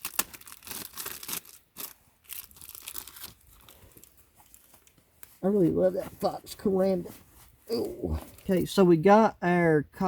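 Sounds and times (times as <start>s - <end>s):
plastic packet tearing and crinkling: 0.0s - 5.0s.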